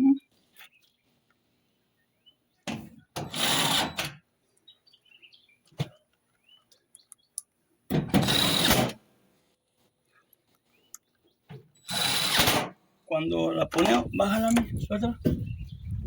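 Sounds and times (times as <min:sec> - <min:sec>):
impact driver driving screws: 0:03.2 - 0:04.2, 0:08.0 - 0:09.0, 0:11.8 - 0:12.8.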